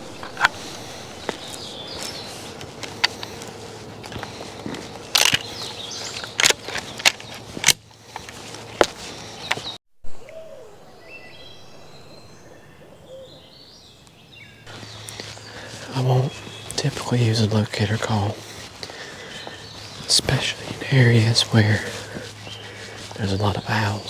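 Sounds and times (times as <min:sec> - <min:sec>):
bird whistling: 0:00.0 - 0:02.6, 0:10.1 - 0:15.5
hunting gear clicking and knocking: 0:02.8 - 0:09.7.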